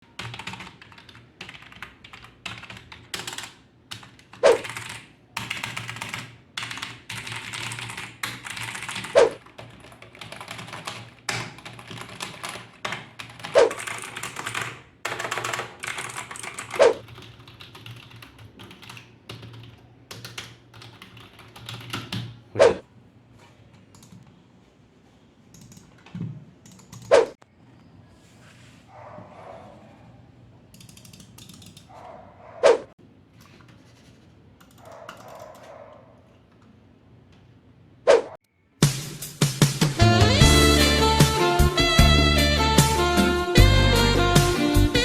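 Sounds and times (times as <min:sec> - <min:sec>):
mechanical keyboard clicks: 0:00.2 - 0:22.3, 0:30.7 - 0:31.9.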